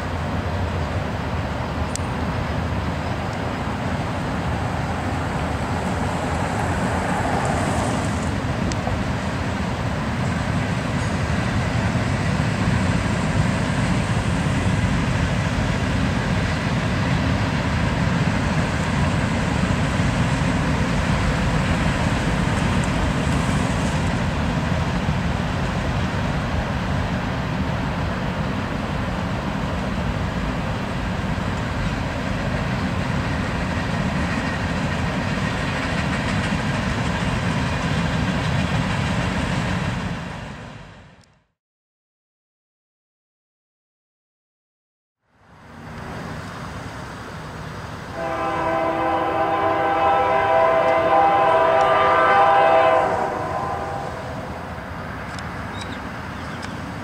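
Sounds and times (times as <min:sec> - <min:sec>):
freight train rumbling: 0:00.0 - 0:41.3, 0:45.4 - 0:57.0.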